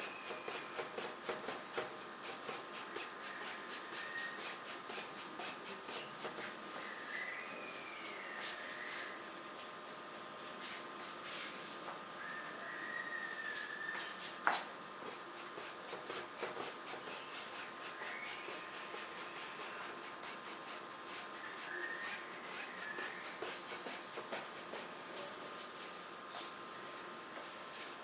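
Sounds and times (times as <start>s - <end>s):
paintbrush strokes and dabs: 0.0s - 6.9s, 10.2s - 11.9s, 14.0s - 26.0s.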